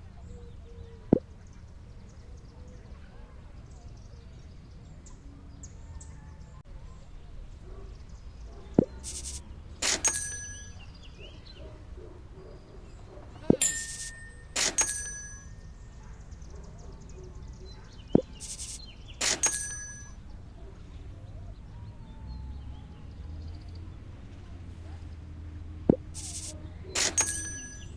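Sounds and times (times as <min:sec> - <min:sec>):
sharp click: 0:08.8 - 0:10.8, 0:13.6 - 0:15.6, 0:18.1 - 0:20.1, 0:25.9 - 0:27.9
bright metallic dings: 0:08.8 - 0:11.3, 0:13.5 - 0:16.2, 0:18.2 - 0:20.4, 0:25.9 - 0:27.9.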